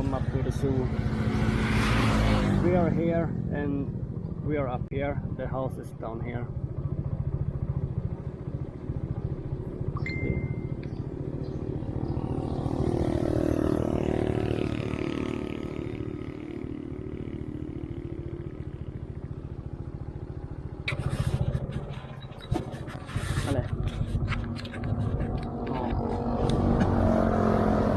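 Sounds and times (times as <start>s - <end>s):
motorbike engine running: 0.0s - 27.9s
road noise: 0.0s - 27.9s
short high beep: 10.0s - 10.8s.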